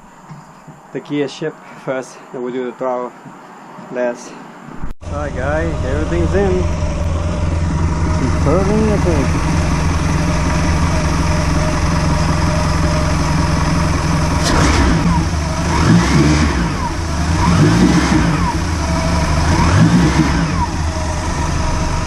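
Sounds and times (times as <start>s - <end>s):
boat engine idling and revving: 5.0s - 22.0s.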